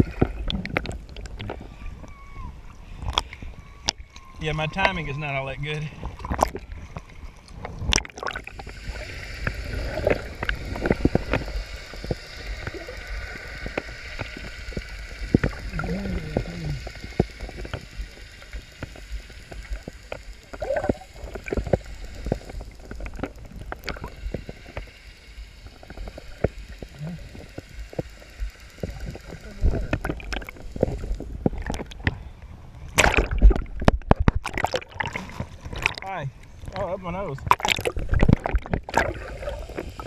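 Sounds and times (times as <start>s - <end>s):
water splashing and sloshing: 0.0s - 40.0s.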